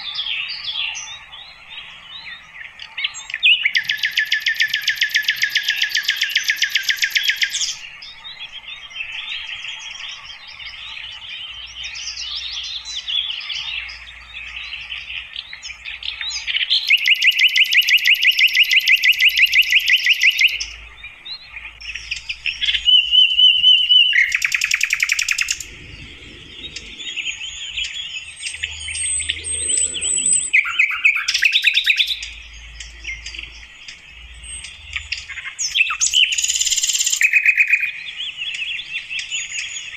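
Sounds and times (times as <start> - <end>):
bird singing rapid trills: 0.0 - 39.9
bird twittering: 0.0 - 39.9
bird whistle: 3.4 - 7.8, 16.2 - 20.8, 21.8 - 32.3, 35.7 - 38.0.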